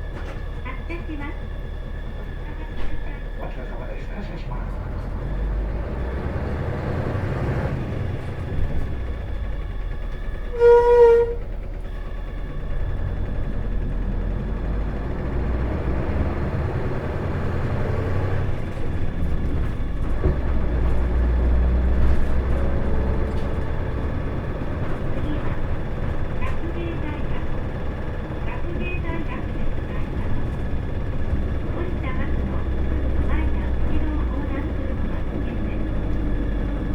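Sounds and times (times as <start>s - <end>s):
bus diesel engine accelerating: 0.0s - 36.9s
short horn-like tone: 10.5s - 11.5s.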